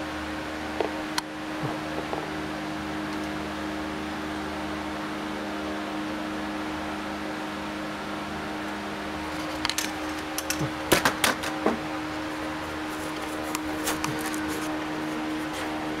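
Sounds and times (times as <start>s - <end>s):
steady mechanical hum: 0.0s - 16.0s
sharp clicks and knocks: 9.5s - 11.8s.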